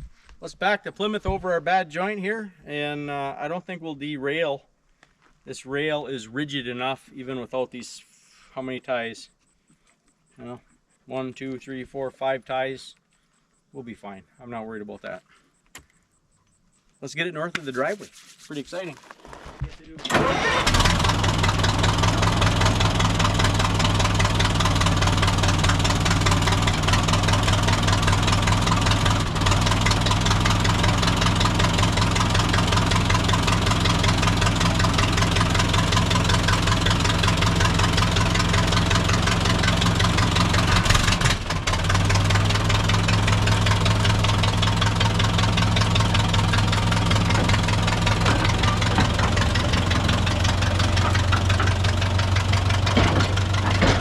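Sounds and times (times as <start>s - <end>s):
locomotive engine running: 20.1s - 54.0s.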